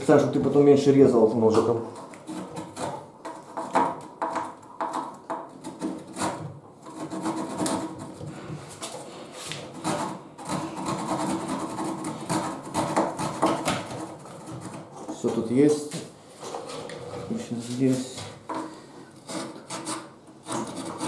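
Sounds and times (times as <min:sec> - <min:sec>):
hand saw cutting wood: 0:05.6 - 0:08.2, 0:09.7 - 0:15.0, 0:18.6 - 0:21.0.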